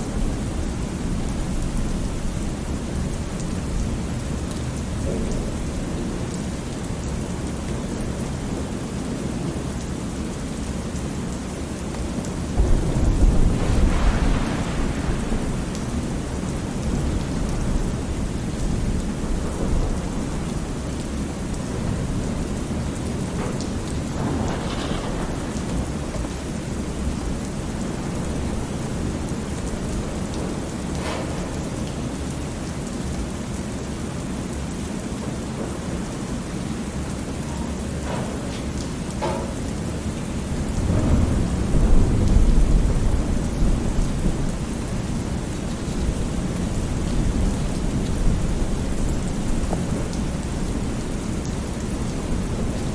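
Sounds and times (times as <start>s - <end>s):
steady rain: 0.0s - 52.9s
rolling thunder: 12.5s - 31.8s, 40.3s - 52.9s.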